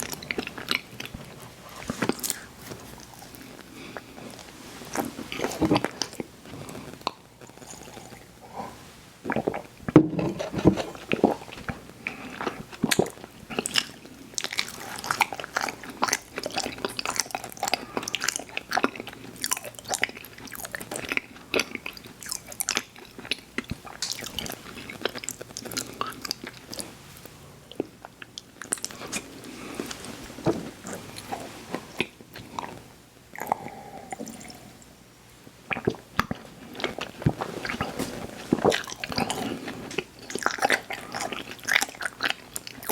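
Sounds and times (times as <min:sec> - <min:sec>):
chewing sweets: 0:00.0 - 0:08.3, 0:09.3 - 0:35.0, 0:35.7 - 0:42.9.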